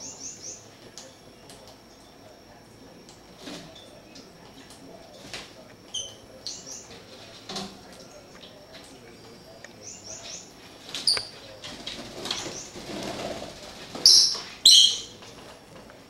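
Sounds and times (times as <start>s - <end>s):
pet birds chirping: 0.0s - 2.3s, 5.7s - 7.1s, 7.9s - 12.9s, 14.0s - 15.2s.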